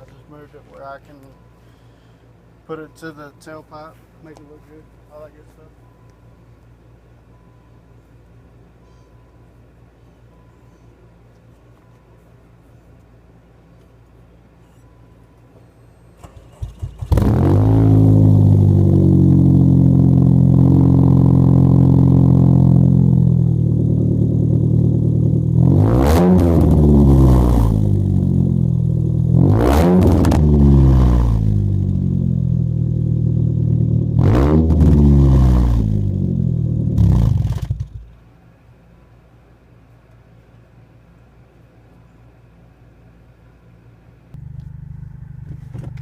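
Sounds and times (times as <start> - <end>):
car engine idling: 15.3 - 25.7, 26.8 - 29.4, 30.3 - 34.2, 44.3 - 46.0
car engine revving: 16.3 - 38.0, 44.4 - 46.0.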